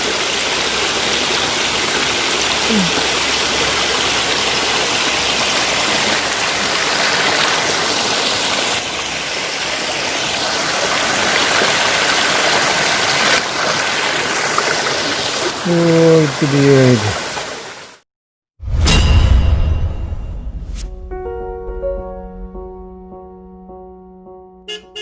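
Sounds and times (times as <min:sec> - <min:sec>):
waterfall pouring: 0:00.0 - 0:18.0.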